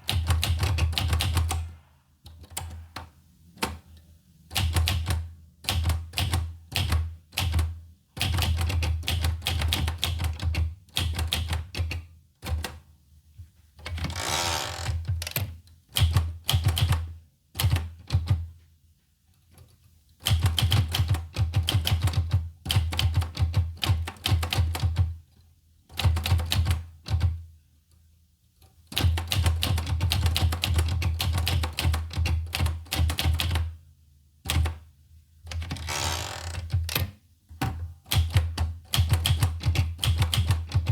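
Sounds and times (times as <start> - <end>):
typewriter carriage rasping sweep: 14.1 - 14.9, 35.8 - 36.6
typewriter key strikes: 38.1 - 40.9.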